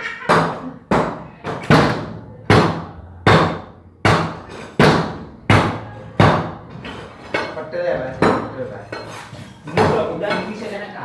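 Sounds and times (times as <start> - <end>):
hammer blows ringing: 0.3 - 6.6.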